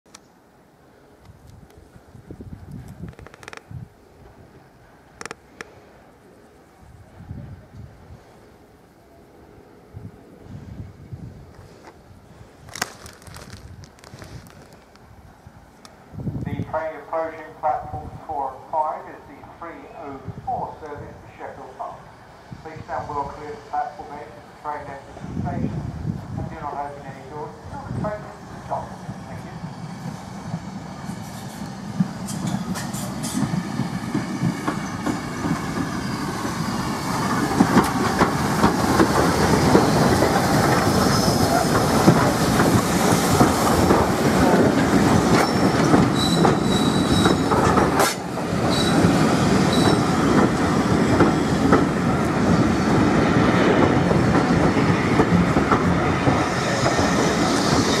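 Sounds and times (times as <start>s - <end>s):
train wheels clattering over rail joints: 30.5s - 52.0s
high squeal: 35.9s - 37.3s, 40.9s - 41.7s, 45.4s - 47.5s, 48.7s - 49.0s, 49.7s - 50.2s.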